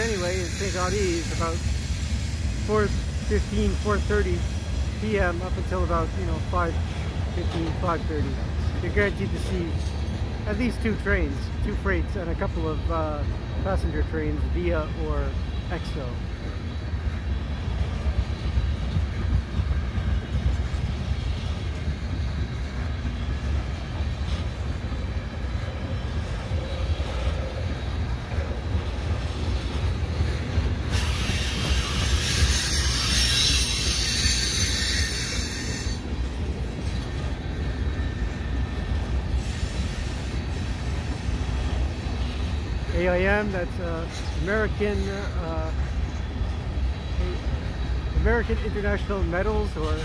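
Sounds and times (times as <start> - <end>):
train wheels rumbling on track: 0.0 - 50.0
wheels screeching: 14.9 - 42.8.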